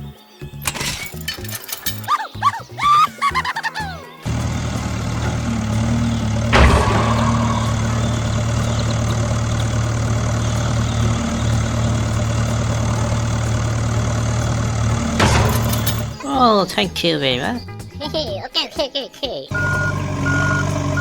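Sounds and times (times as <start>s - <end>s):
engine idling: 4.2s - 16.6s, 19.5s - 21.0s
sharp knock: 6.6s - 8.6s.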